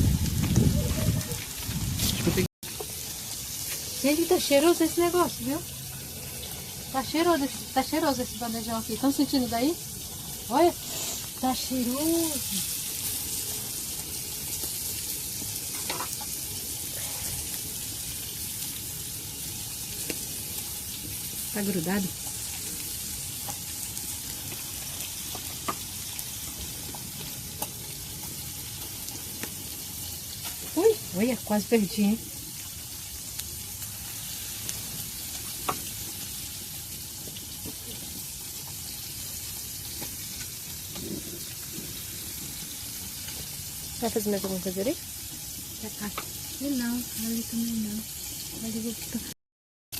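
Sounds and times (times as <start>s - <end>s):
food sizzling in a pan: 0.0s - 49.4s
small crackles: 10.0s - 31.0s, 32.3s - 44.0s.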